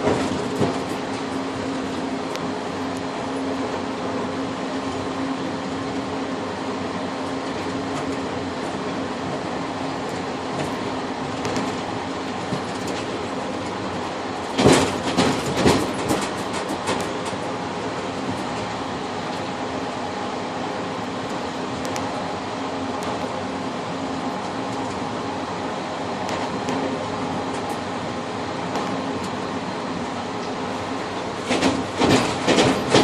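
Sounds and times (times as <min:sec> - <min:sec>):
wheels clattering over rail joints: 0:00.0 - 0:03.8, 0:07.4 - 0:19.6, 0:30.4 - 0:33.0
train car rumble: 0:00.0 - 0:33.0.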